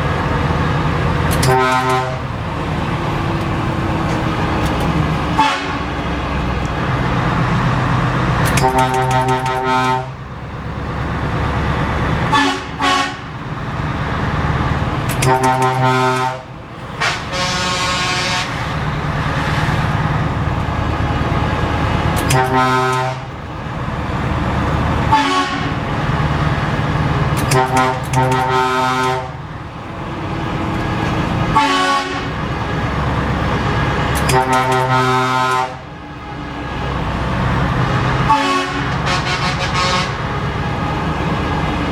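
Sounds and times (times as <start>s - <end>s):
truck engine running: 0.0s - 41.9s
truck air horn blasts: 1.3s - 2.3s, 5.3s - 6.0s, 8.5s - 10.2s, 12.3s - 13.3s, 15.1s - 18.8s, 22.2s - 23.4s, 25.1s - 25.8s, 27.4s - 29.4s, 31.5s - 32.4s, 33.7s - 35.9s, 38.2s - 40.4s.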